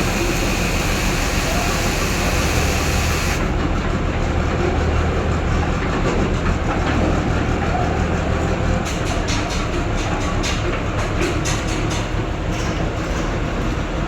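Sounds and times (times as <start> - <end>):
heavy machinery diesel engine: 0.0 - 8.9.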